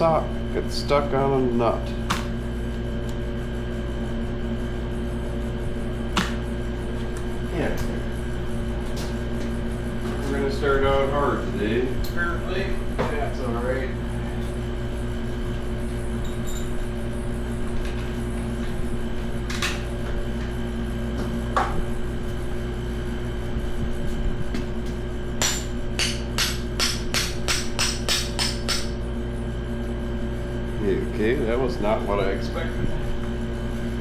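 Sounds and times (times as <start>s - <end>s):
steady background hum: 0.0s - 34.0s
hammer striking metal: 25.4s - 29.0s.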